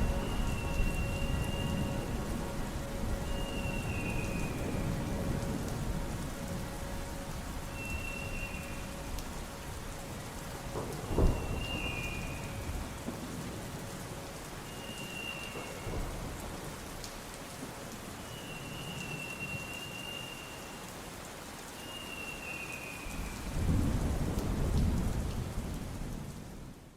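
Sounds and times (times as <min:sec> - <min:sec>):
low rumble of thunder: 0:00.0 - 0:14.6, 0:15.5 - 0:17.0, 0:23.1 - 0:26.9
steady rain: 0:00.0 - 0:26.9
thunder crack: 0:10.7 - 0:13.2.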